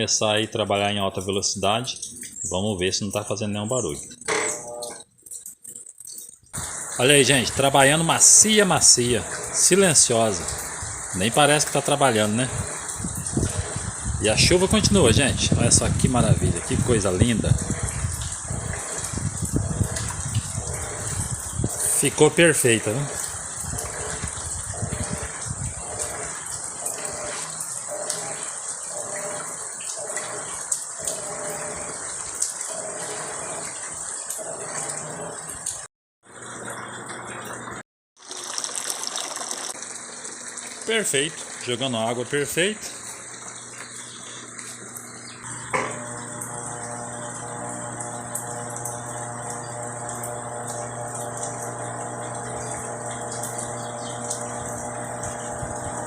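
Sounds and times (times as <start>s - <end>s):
washing machine running: 0.0s - 56.0s
water gushing and swishing: 12.1s - 41.7s.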